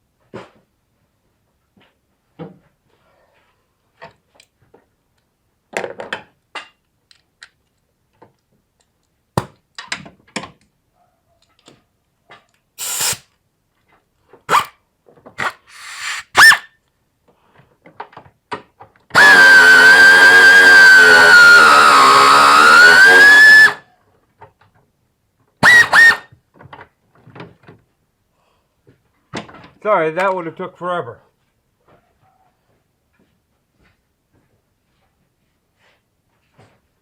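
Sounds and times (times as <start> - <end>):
scraping bursts: 12.8 - 13.2, 14.5 - 14.7, 15.4 - 16.7, 19.2 - 23.8, 25.6 - 26.2.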